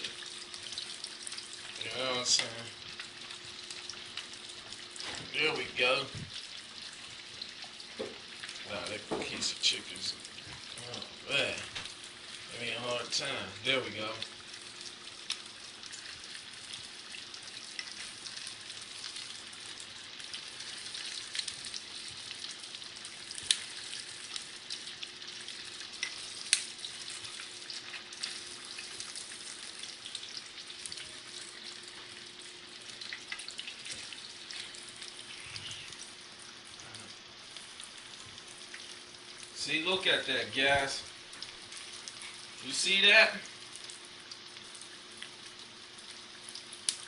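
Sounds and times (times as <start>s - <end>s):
chicken sizzling in hot oil: 0.0s - 47.0s.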